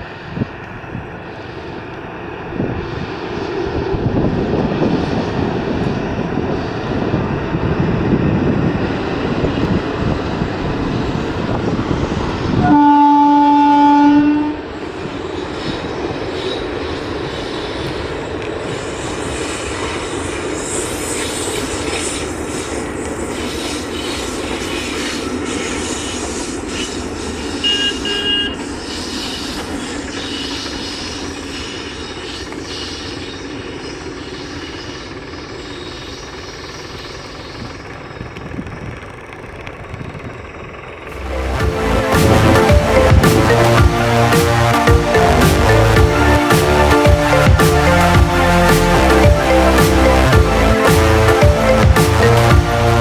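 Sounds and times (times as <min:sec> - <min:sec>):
train rumble and wheel clatter: 0:00.0 - 0:43.6
locomotive horn blast: 0:12.6 - 0:14.6, 0:27.6 - 0:28.6, 0:41.1 - 0:53.0.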